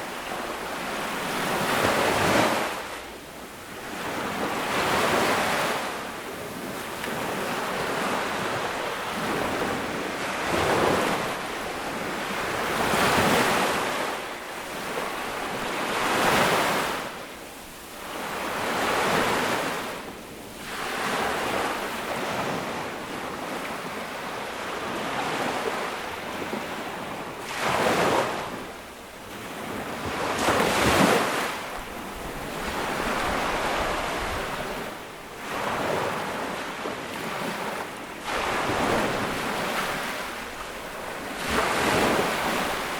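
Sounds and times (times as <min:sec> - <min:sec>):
ocean waves breaking: 0:18.0 - 0:42.9.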